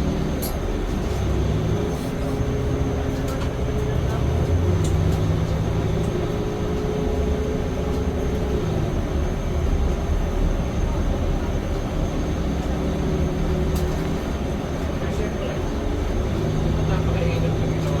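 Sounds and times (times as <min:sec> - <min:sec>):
droning hum: 0:00.0 - 0:18.0
vehicle interior rumble: 0:00.0 - 0:18.0.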